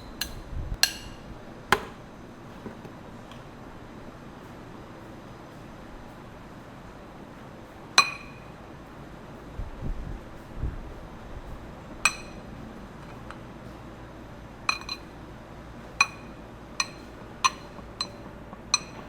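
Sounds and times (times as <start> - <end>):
utensil clinking against glass bowl: 8.0 - 8.5, 12.0 - 13.4, 14.7 - 15.1, 16.0 - 19.0.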